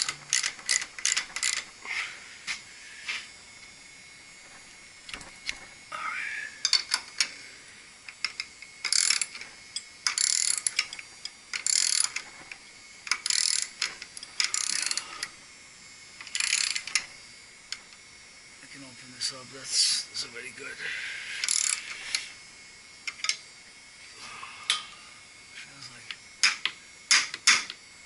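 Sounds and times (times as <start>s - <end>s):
hand ratchet clicking: 0.0s - 1.7s, 6.6s - 7.3s, 8.1s - 12.2s, 13.0s - 15.3s, 16.2s - 17.1s, 21.4s - 22.2s.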